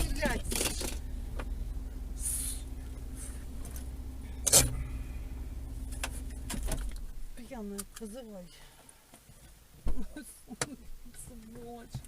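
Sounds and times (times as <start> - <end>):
car engine and road rumble: 0.0 - 12.0
short hiss: 2.2 - 3.4.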